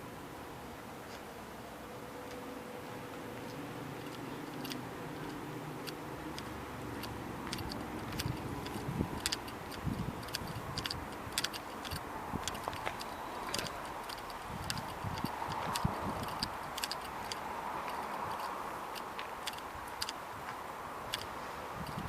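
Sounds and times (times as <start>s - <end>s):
tram humming: 0.0s - 22.0s
sharp clicks: 4.0s - 20.2s, 21.1s - 22.0s
wheels knocking at rail joints: 4.0s - 22.0s.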